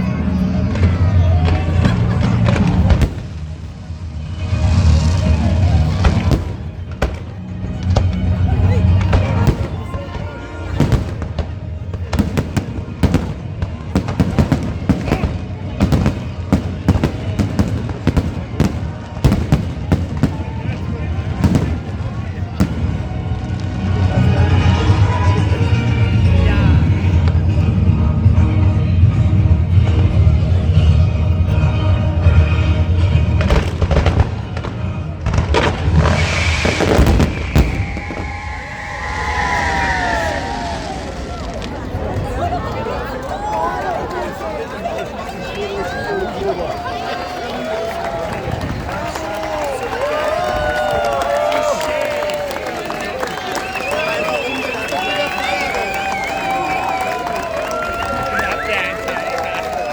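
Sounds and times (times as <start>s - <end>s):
low rumble: 0.0s - 42.8s
fireworks bangs: 0.3s - 27.5s, 32.9s - 43.2s
fireworks whistling: 4.3s - 23.9s, 33.4s - 42.4s, 53.3s - 59.4s.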